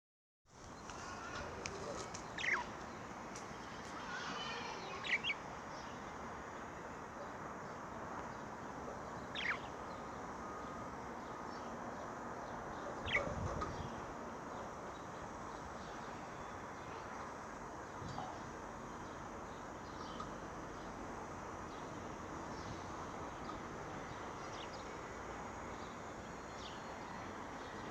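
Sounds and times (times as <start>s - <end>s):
budgerigars chirping: 1.8s - 2.8s, 9.3s - 9.8s, 13.0s - 13.4s.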